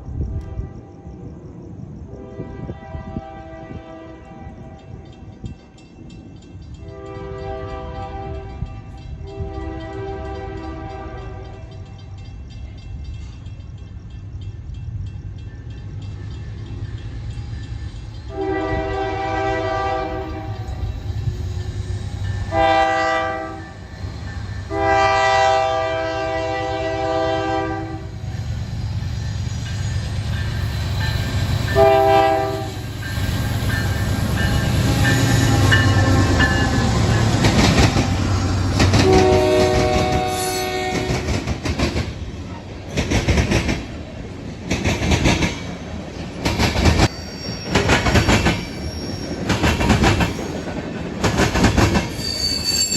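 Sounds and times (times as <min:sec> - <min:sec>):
train horn blasts: 0:00.3 - 0:01.2, 0:02.1 - 0:05.3, 0:06.8 - 0:11.9, 0:18.3 - 0:21.0, 0:22.4 - 0:23.8, 0:24.6 - 0:28.3, 0:31.7 - 0:33.1, 0:38.0 - 0:41.3
train wheels clacking on rails: 0:04.5 - 0:26.0, 0:27.0 - 0:52.9.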